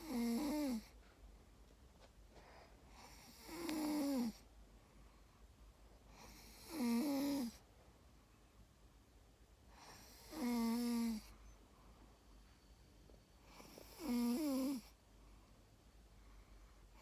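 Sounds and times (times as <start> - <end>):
dog snoring: 0.0 - 1.0, 2.9 - 4.4, 6.1 - 7.6, 9.7 - 11.3, 13.4 - 15.0.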